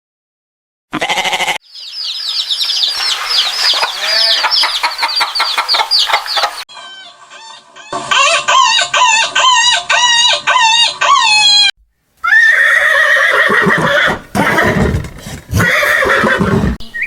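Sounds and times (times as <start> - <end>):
chickens peeping: 1.6 - 11.6, 16.8 - 17.0.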